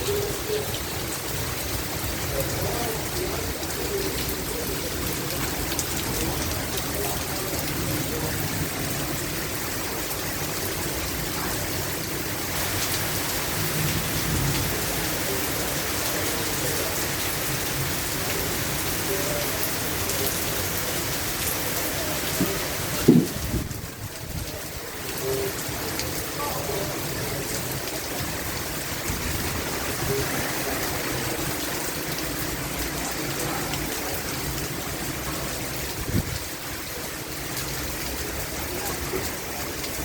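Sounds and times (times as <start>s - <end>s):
steady rain: 0.0s - 40.0s
short knock: 22.4s - 23.6s.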